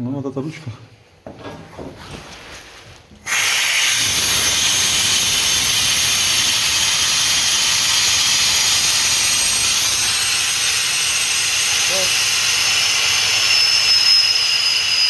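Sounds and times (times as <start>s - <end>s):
compressed air hissing: 3.2s - 15.0s.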